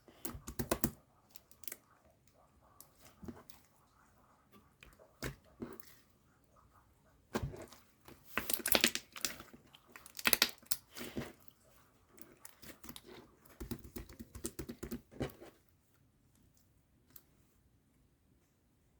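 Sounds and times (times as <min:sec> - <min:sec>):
slime squished by hand: 0:07.3 - 0:11.4.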